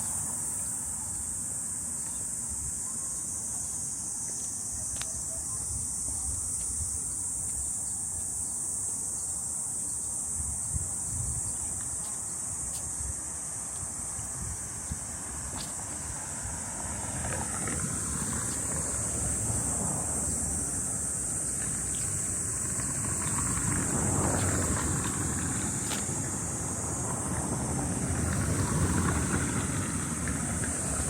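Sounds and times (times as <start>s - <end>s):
insects droning: 0.0s - 31.0s
wind rumble on microphone: 10.2s - 12.1s, 12.9s - 31.0s.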